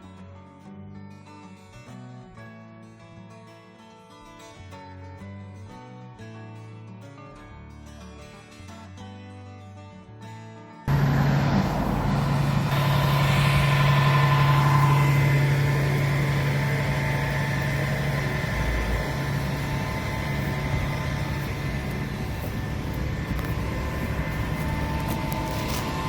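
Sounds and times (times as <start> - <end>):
quiet music: 10.9 - 26.0
vehicle engine humming: 10.9 - 26.0.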